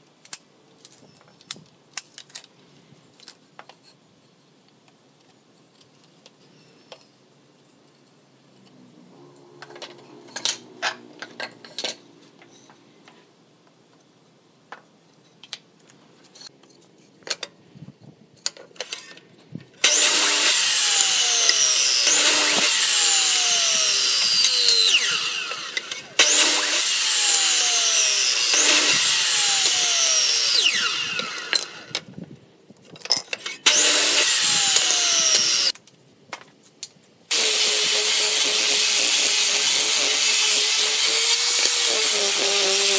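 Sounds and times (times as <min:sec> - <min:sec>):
miter saw cutting wood: 0:19.8 - 0:32.0, 0:33.6 - 0:35.8, 0:37.3 - 0:42.9.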